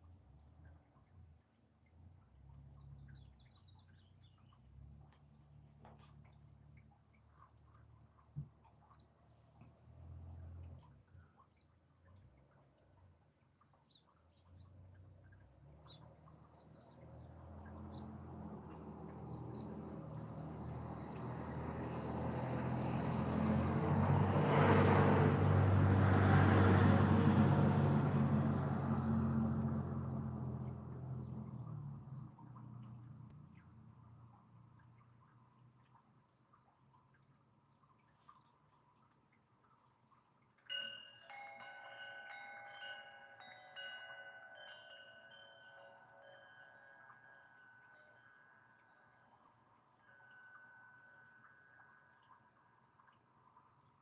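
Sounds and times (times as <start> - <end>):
vehicle engine passing: 14.9 - 34.8
chimes ringing: 40.7 - 52.6.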